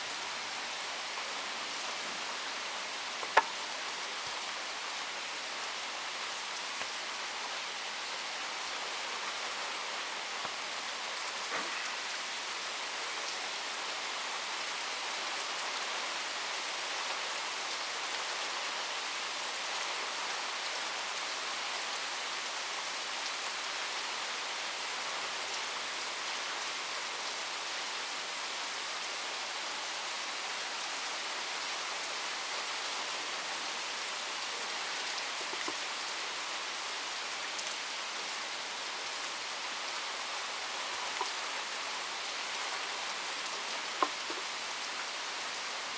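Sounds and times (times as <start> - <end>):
rain pattering: 0.0 - 15.8, 31.6 - 45.9.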